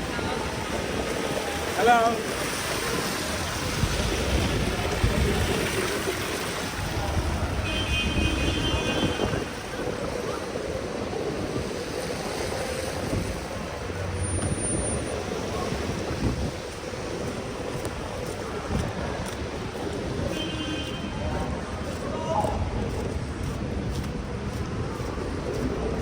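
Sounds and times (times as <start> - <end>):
vehicle traffic: 0.0 - 26.0
wind on microphone: 0.0 - 26.0.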